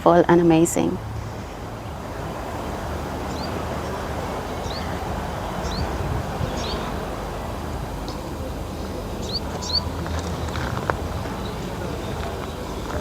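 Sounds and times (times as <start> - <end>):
steady background rumble: 0.0 - 13.0
small bird chirping: 4.6 - 5.0, 5.6 - 6.9, 9.2 - 13.0.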